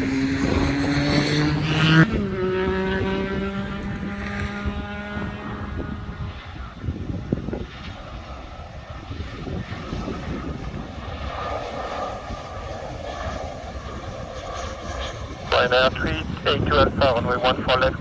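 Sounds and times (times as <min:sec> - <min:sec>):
jet engines rumbling: 0:06.0 - 0:18.0.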